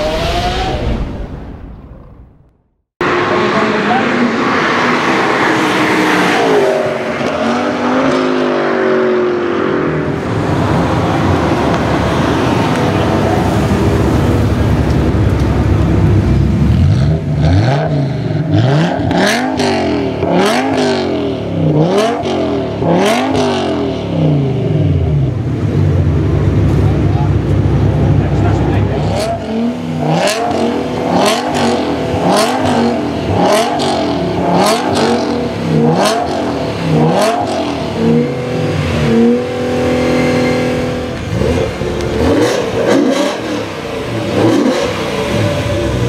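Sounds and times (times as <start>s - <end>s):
engine revving: 0.0s - 2.2s, 3.0s - 25.8s, 26.4s - 46.0s
car passing at speed: 3.0s - 15.2s
car engine idling: 10.0s - 18.5s, 23.7s - 46.0s.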